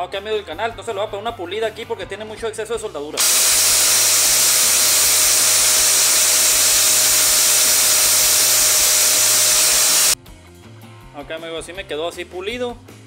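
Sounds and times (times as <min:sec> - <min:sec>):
electric grinder grinding metal: 0:03.2 - 0:10.2.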